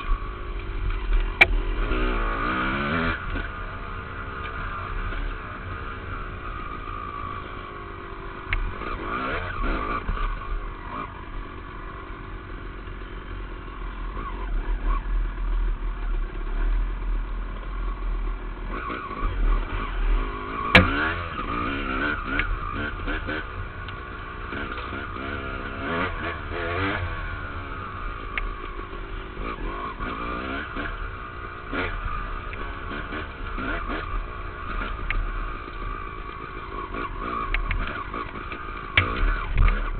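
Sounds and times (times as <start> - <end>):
dirt bike engine revving: 0.0 - 16.8, 17.7 - 39.9
sharp knock: 20.7 - 21.0.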